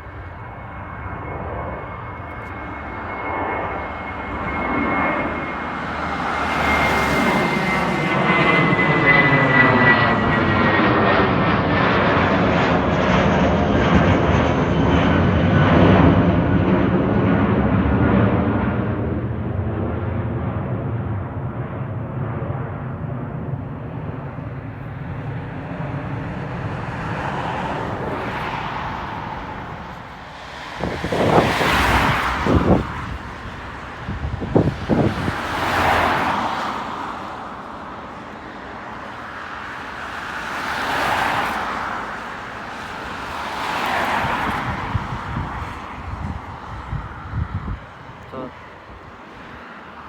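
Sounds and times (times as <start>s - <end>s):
jet engine rumble: 0.0s - 50.0s
road vehicles passing: 5.2s - 8.8s, 24.2s - 50.0s
wind buffeting microphone: 21.2s - 36.8s, 42.7s - 49.2s.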